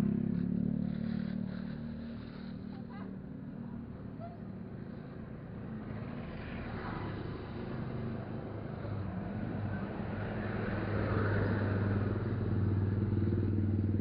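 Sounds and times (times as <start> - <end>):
motorcycle engine running: 0.0 - 5.0
road and wind noise: 0.0 - 14.0.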